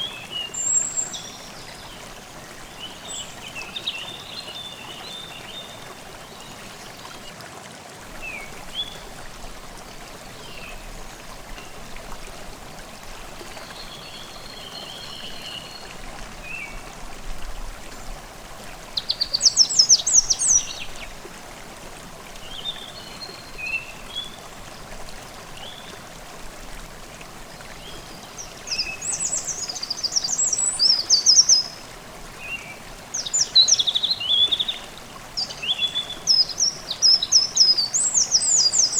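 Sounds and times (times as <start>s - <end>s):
songbirds calling: 0.0s - 7.4s, 17.5s - 21.3s, 27.7s - 38.9s
stream babbling: 0.0s - 38.9s.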